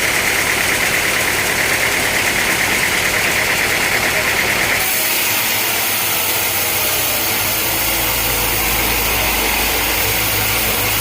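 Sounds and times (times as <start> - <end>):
low engine rumble: 0.0 - 4.9, 7.1 - 11.0
saw cutting through log: 0.0 - 11.0.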